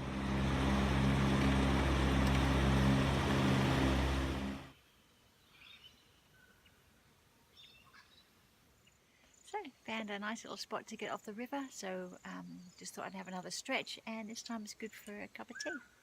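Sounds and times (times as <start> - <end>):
engine running with low hum: 0.0 - 4.7.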